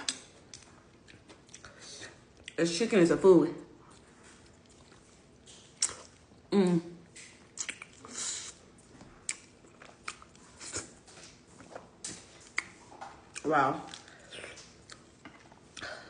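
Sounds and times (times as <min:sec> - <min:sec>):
chewing: 0:00.1 - 0:02.6, 0:03.8 - 0:06.5, 0:07.1 - 0:16.0
wet mouth clicks and smacks: 0:05.4 - 0:06.2, 0:07.1 - 0:08.6.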